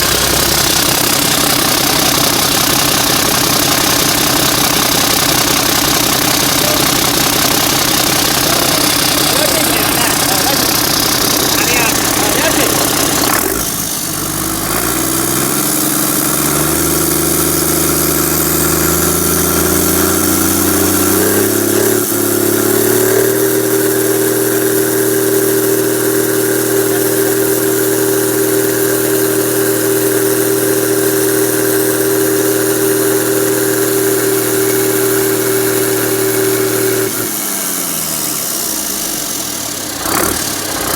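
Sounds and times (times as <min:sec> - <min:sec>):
diesel engine revving: 0:00.0 - 0:40.9.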